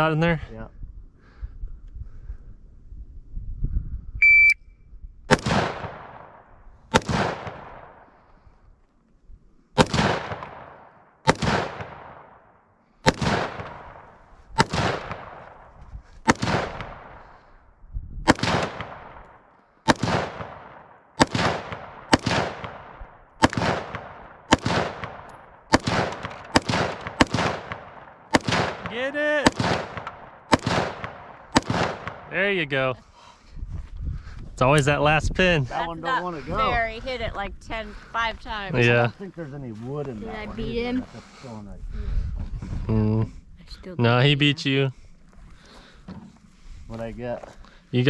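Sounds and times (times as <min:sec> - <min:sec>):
shot timer beep: 0:04.2 - 0:04.7
echoing gunshots: 0:05.3 - 0:08.2, 0:09.8 - 0:17.5, 0:18.3 - 0:33.0.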